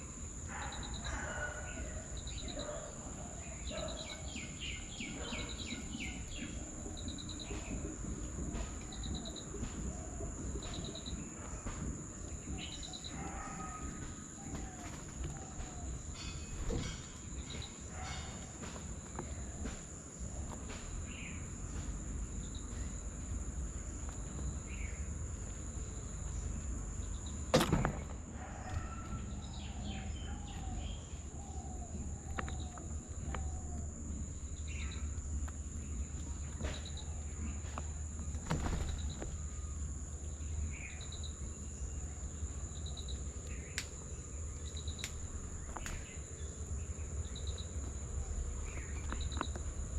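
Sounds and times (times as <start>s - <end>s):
bird chirps: 0.5s - 7.9s.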